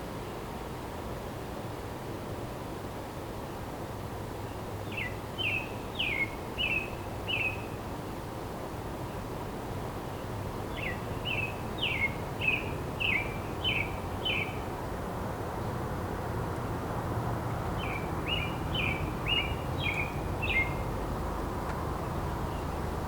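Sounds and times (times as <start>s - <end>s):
songbird singing: 4.4s - 8.2s, 10.0s - 14.9s, 15.5s - 23.0s
steady outdoor rush: 12.2s - 23.0s.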